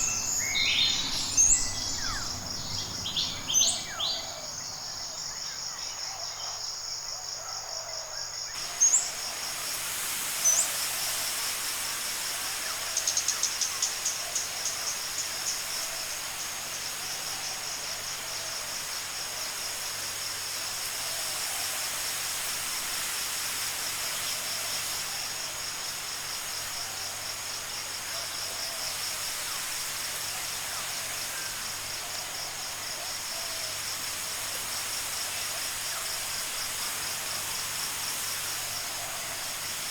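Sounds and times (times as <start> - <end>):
rising bird chirps: 0.0 - 4.9
high insect trill: 0.0 - 39.9.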